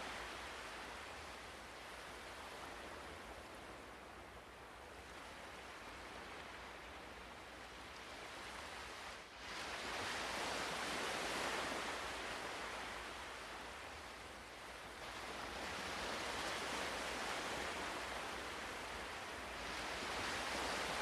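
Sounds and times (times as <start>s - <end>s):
ocean surf waves: 14.5s - 21.0s.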